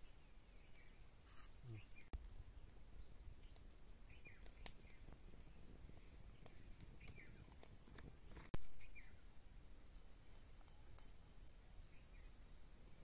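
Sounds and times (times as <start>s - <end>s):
bird chirping: 0.0s - 2.2s, 2.8s - 5.7s, 8.7s - 9.2s, 11.8s - 13.0s.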